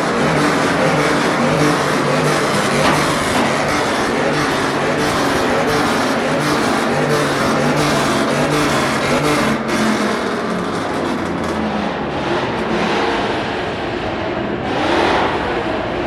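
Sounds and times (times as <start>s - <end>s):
car engines running: 0.0s - 16.0s
car revving: 0.0s - 16.0s.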